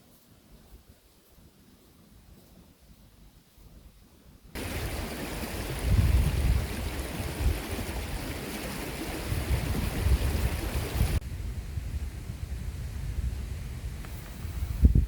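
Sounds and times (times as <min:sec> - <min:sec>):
storm wind buffeting microphone: 0:04.6 - 0:15.0.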